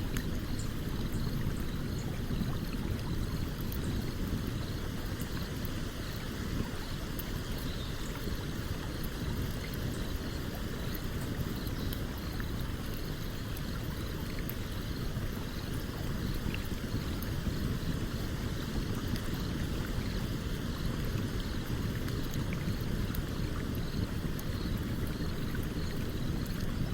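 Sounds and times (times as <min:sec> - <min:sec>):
campfire crackling: 0:08.1 - 0:26.9.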